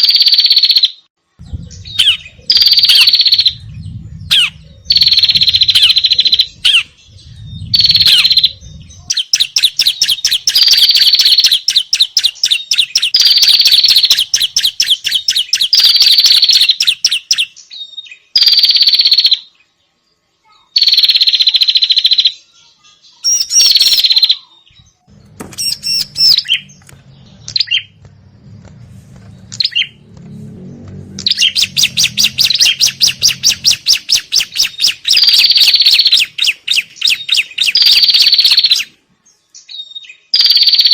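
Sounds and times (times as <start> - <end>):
birds scolding calls: 1.4 - 18.2, 25.1 - 39.0.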